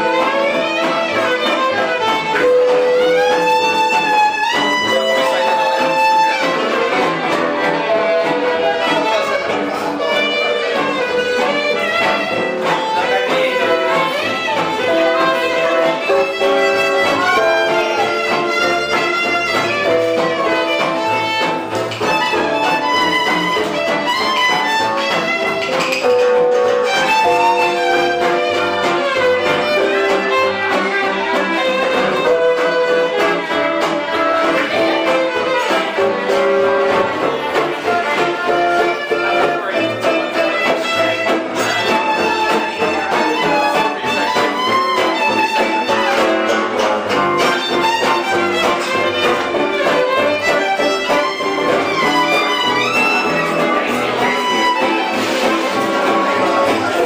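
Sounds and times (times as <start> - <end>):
live band playing: 0.0 - 57.0
strummed accompaniment: 0.0 - 57.0
violin melody with sliding notes: 0.0 - 57.0
melody of long held notes: 26.1 - 30.6.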